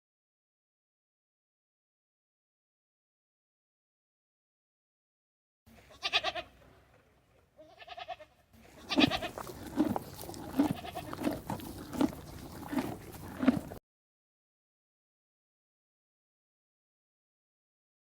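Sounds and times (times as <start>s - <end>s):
goat bleating: 5.9s - 6.6s, 7.6s - 13.7s.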